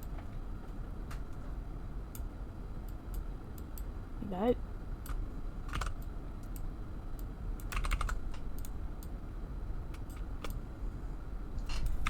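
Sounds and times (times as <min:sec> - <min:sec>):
steady low hum: 0:00.0 - 0:12.0
keyboard keys clicking: 0:05.1 - 0:06.6, 0:07.6 - 0:08.7.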